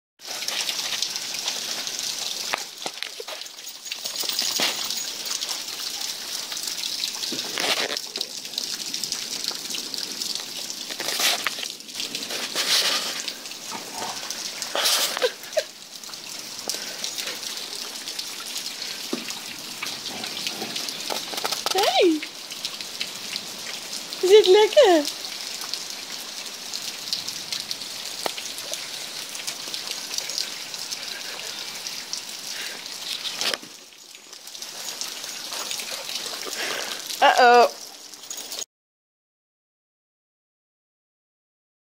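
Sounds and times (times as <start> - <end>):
heavy rain: 0.2 - 38.7.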